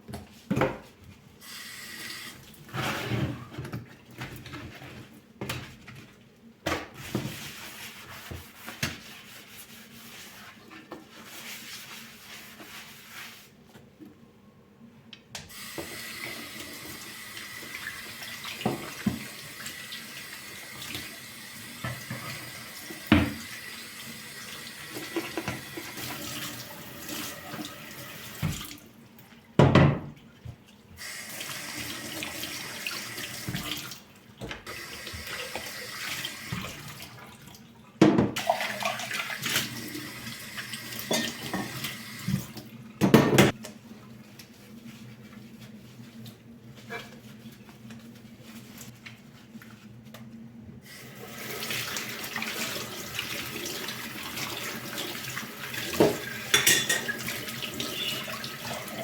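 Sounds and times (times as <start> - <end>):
tap water running into sink: 15.5 - 28.8, 31.0 - 37.3, 38.2 - 43.5, 51.2 - 59.0.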